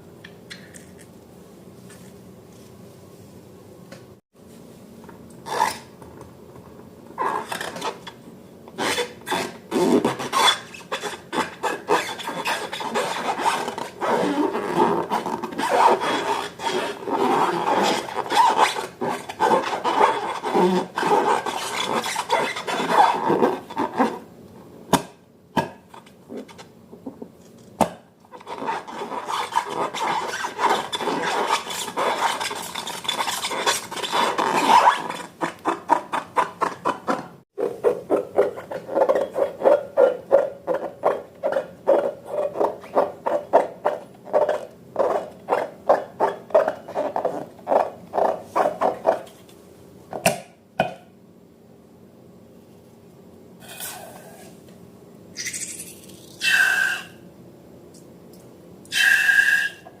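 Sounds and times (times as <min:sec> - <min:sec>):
slime scraping in a bowl: 0:28.4 - 0:49.4
high-pitched squeaks: 0:55.4 - 0:57.1.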